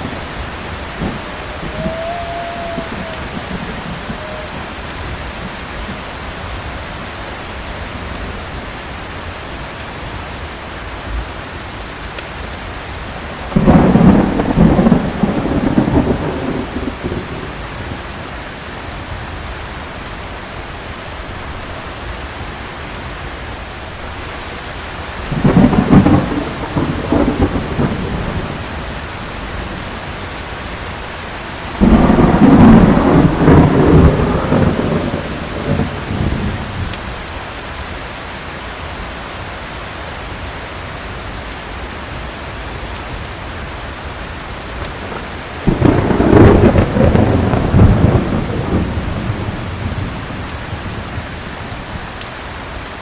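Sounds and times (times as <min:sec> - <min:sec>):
thunder clapping: 0:00.0 - 0:08.9, 0:11.9 - 0:18.3, 0:25.0 - 0:37.4, 0:44.7 - 0:52.2
heavy rain: 0:00.0 - 0:53.0.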